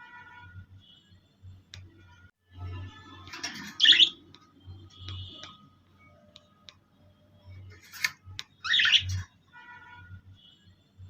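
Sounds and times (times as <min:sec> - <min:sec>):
birds chirping and calling: 0:03.2 - 0:04.5, 0:07.7 - 0:09.3.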